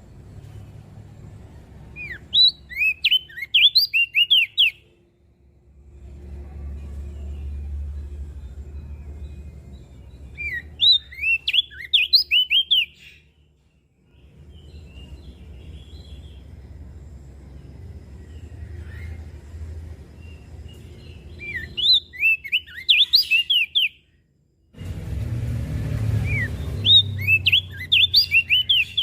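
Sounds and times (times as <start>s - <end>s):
bird whistling song: 1.9s - 4.9s, 8.8s - 13.4s, 20.2s - 24.2s, 26.1s - 29.0s
low rumble: 5.4s - 10.8s, 24.8s - 27.8s.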